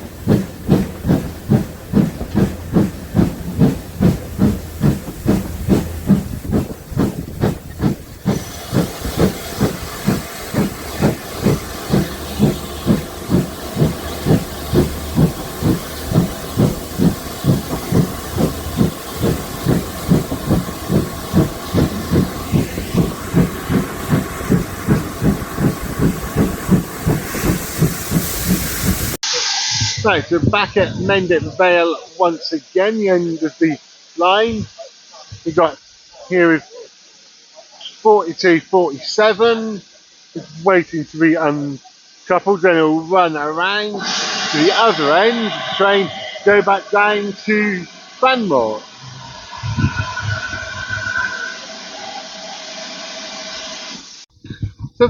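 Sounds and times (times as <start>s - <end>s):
steam locomotive chuffing: 0.0s - 31.5s, 43.6s - 54.3s
steam hiss: 0.0s - 54.3s.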